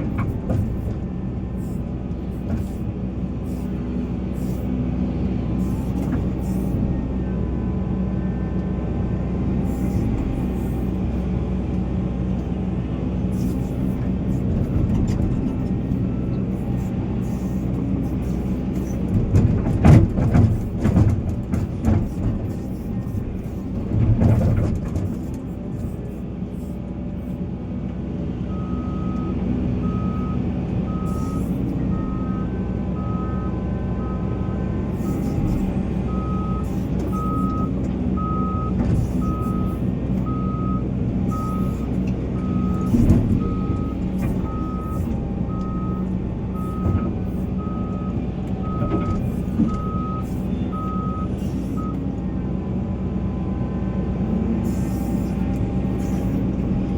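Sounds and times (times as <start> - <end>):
diesel engine running: 0.0 - 56.9
reversing alarm beeping: 28.5 - 52.1.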